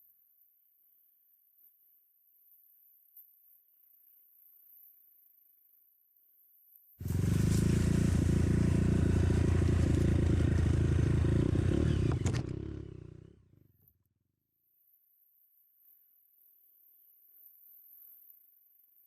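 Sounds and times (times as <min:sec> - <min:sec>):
motorcycle engine running: 0:07.0 - 0:13.7.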